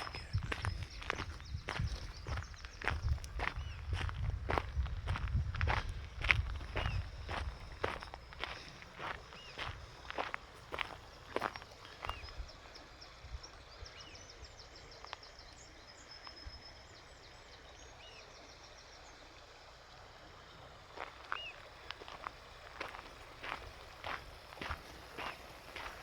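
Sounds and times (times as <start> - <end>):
small bird twittering: 0.0 - 4.7, 6.7 - 12.5
faint outdoor hiss: 5.9 - 26.0
footsteps: 22.0 - 26.0.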